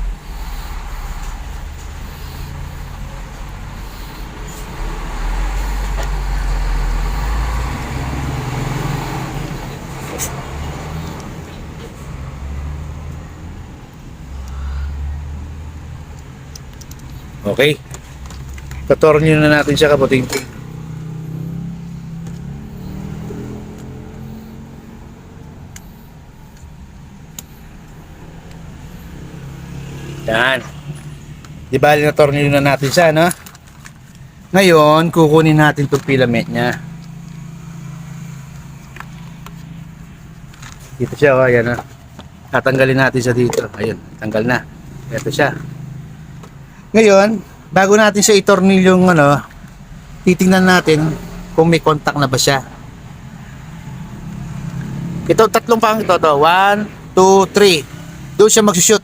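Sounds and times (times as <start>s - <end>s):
low engine-like rumble: 0.0s - 7.9s
road traffic rumble: 0.0s - 59.0s.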